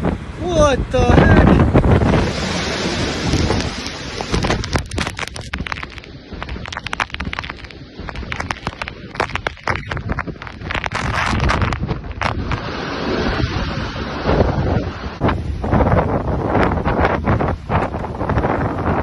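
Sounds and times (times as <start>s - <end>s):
rain pelting near microphone: 0.0s - 13.5s
wind and rain roaring: 0.0s - 19.0s.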